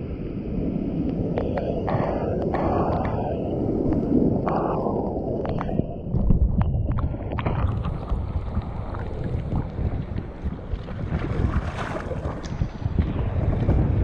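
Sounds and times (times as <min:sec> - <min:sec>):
wind buffeting microphone: 0:00.0 - 0:14.0
seawater rushing around boat: 0:07.5 - 0:14.0.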